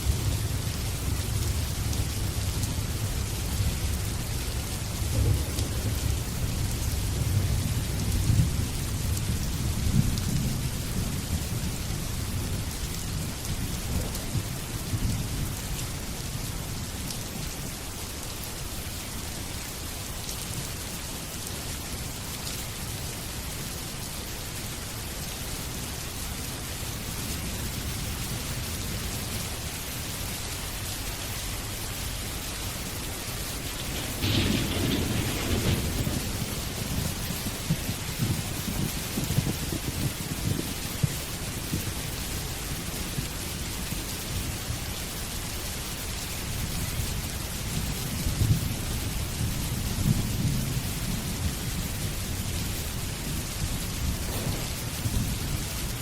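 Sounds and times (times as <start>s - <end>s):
thunder rumbling: 0.0s - 15.6s, 33.2s - 41.9s, 48.2s - 56.0s
steady rain: 0.0s - 56.0s.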